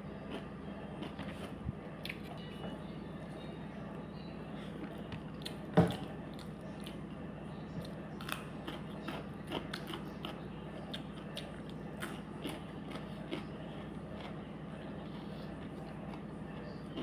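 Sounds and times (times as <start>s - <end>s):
person chewing and crunching: 0.2s - 2.4s, 7.8s - 17.0s.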